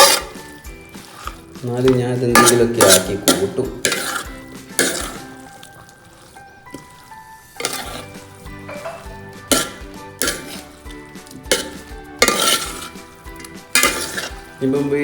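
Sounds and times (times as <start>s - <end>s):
chicken sizzling in a pan: 0.0s - 15.0s
spoon knocking against pan: 1.9s - 4.2s, 8.6s - 14.4s.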